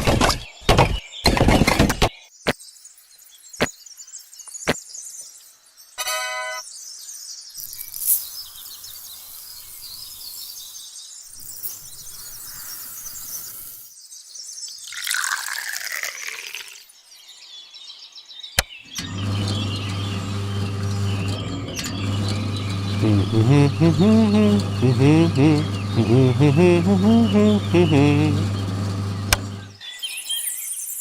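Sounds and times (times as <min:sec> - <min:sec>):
birds chirping: 0:16.9 - 0:31.0
low motor hum: 0:19.0 - 0:29.8.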